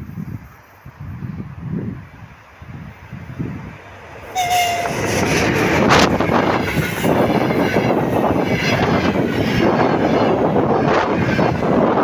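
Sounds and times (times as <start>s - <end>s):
train rolling noise: 0.0s - 12.0s
locomotive horn toot: 4.3s - 5.4s.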